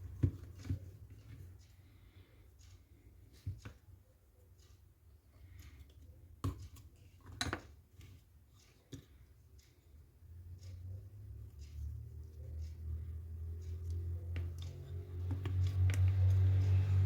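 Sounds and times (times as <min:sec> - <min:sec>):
faint low hum: 0:00.0 - 0:17.0
small parts clicking and knocking: 0:13.6 - 0:17.0.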